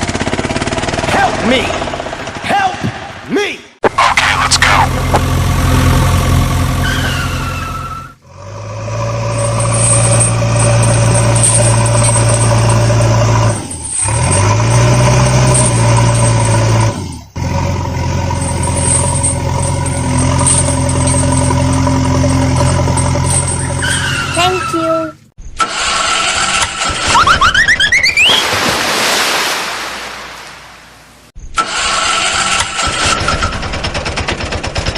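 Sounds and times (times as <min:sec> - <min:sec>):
vehicle engine running: 0:00.0 - 0:03.3, 0:03.9 - 0:25.3.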